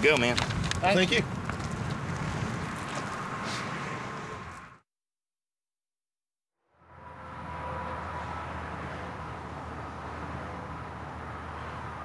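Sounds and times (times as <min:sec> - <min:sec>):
vehicle running hum: 0:06.8 - 0:12.0.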